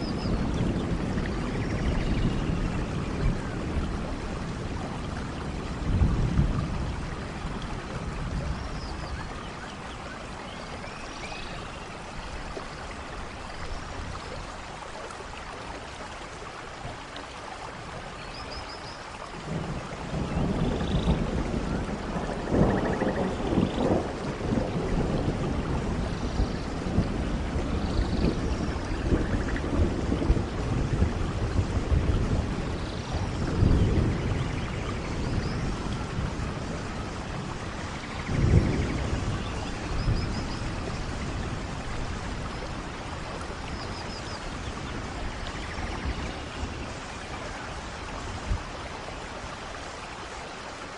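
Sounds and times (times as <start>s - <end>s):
thunder rumbling: 0.0s - 9.4s, 19.4s - 49.5s
steady rainfall: 0.0s - 50.9s.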